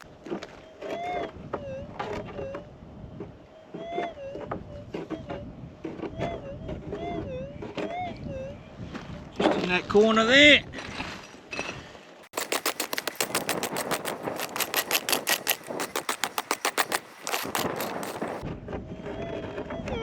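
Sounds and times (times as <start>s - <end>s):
pick scraping hard ground: 12.3s - 18.4s.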